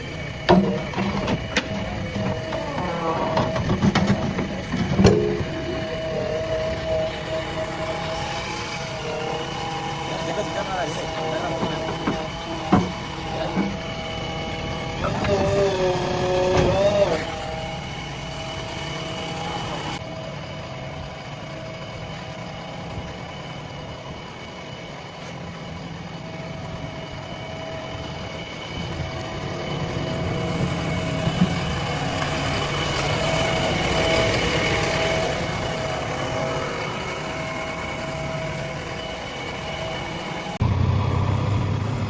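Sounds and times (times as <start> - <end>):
heavy machine engine whining: 0.0 - 42.0.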